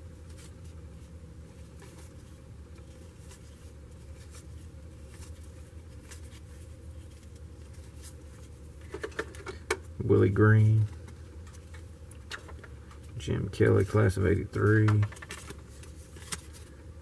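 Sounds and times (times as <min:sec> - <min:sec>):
steady low hum: 0:00.0 - 0:17.0
trading cards being flipped: 0:13.7 - 0:16.8.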